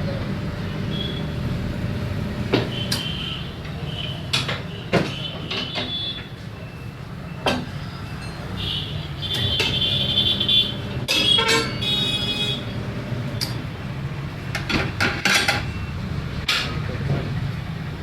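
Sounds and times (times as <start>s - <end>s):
metallic knocks and clanks: 2.5s - 6.2s, 11.1s - 11.9s, 14.5s - 15.8s.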